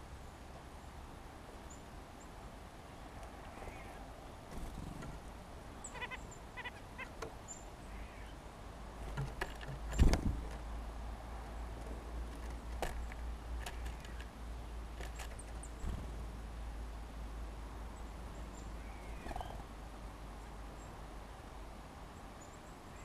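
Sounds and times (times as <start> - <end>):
birds tapping and pecking: 4.5 - 7.6, 8.9 - 10.8, 11.5 - 16.3.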